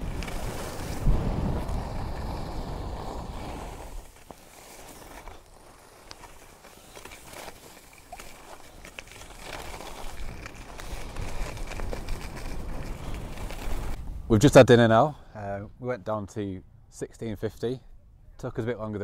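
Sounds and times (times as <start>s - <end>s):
wind buffeting microphone: 0.0s - 4.0s
faint clicks and crunches: 3.5s - 14.0s.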